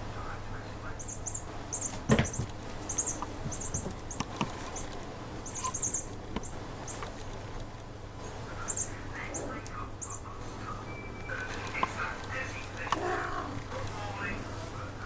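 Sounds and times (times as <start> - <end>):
small bird chirping: 1.0 - 7.1, 8.6 - 10.3.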